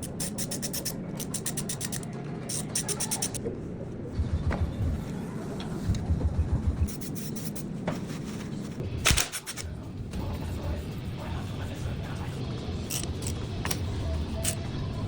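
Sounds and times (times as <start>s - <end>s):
scattered clicks: 0.0s - 3.4s
handling rubbing and bumps: 0.0s - 3.5s.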